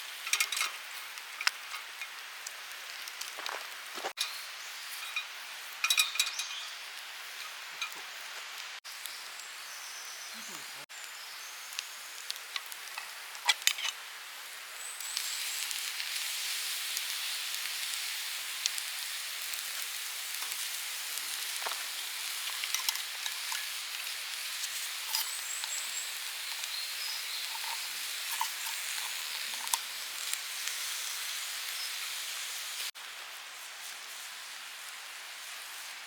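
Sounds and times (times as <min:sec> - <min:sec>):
food sizzling with pops and crackles: 0:00.0 - 0:36.0.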